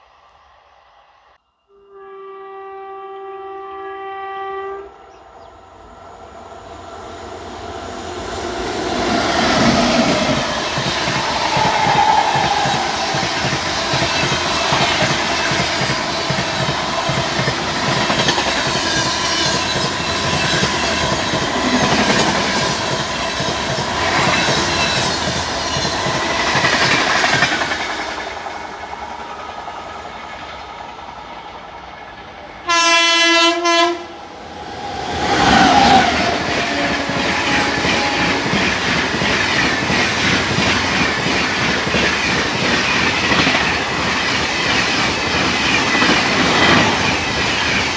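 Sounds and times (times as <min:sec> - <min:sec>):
locomotive horn blast: 0:01.7 - 0:05.2, 0:32.6 - 0:34.3, 0:34.9 - 0:38.8
train rushing past rattling: 0:05.3 - 0:47.9.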